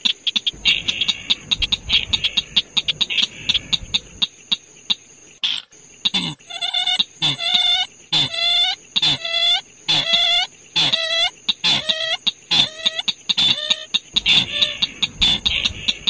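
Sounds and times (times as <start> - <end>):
bird call with nasal upward note: 6.5 - 15.5.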